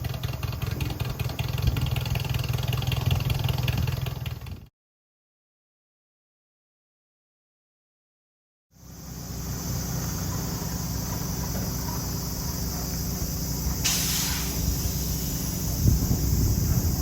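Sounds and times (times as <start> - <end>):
car engine running: 0.0 - 4.6, 8.8 - 17.0
brief hiss: 13.8 - 16.4.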